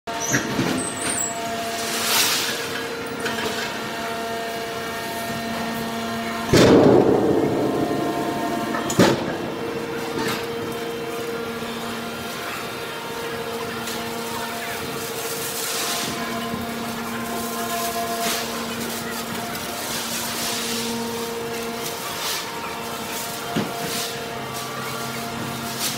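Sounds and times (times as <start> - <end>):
hydraulic pump humming: 5.1 - 14.3
loud rush of noise: 6.0 - 12.8
sharp metallic bang: 6.5 - 12.4.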